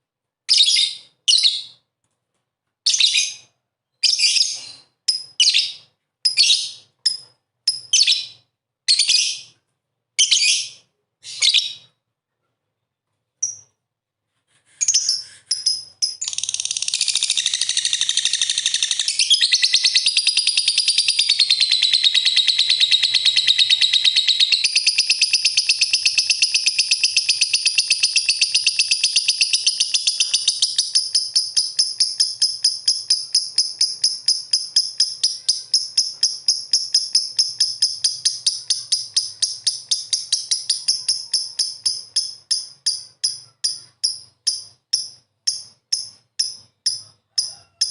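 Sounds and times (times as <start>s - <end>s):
lovebird chattering chirps: 14.8s - 47.9s.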